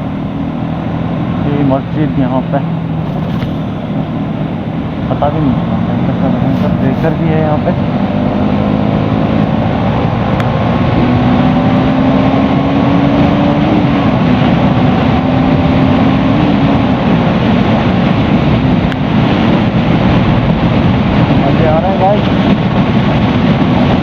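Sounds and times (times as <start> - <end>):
motorcycle engine running: 0.0 - 11.1
wind rush on microphone: 0.2 - 24.0.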